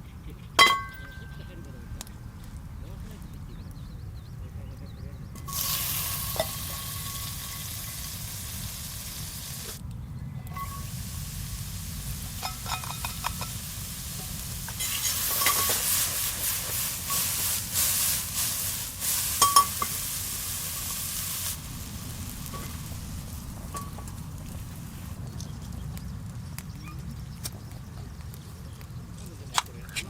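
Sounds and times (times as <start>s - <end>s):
food sizzling in a frying pan: 5.4s - 9.8s, 10.6s - 25.2s
utensil clinking against pan: 12.4s - 13.6s, 14.2s - 16.4s, 19.3s - 20.0s.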